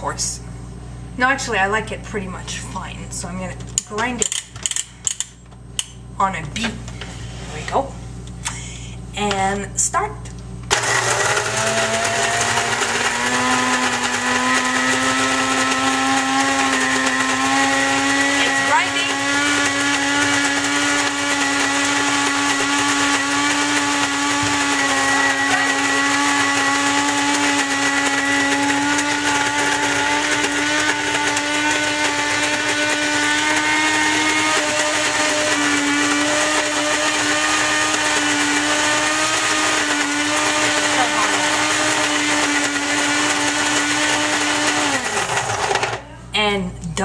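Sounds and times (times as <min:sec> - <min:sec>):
electric coffee grinder grinding: 0:10.7 - 0:46.0.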